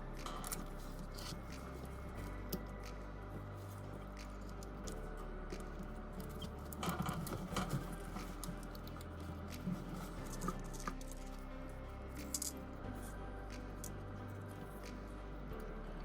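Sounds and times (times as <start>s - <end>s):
quiet background music: 0.0s - 16.0s.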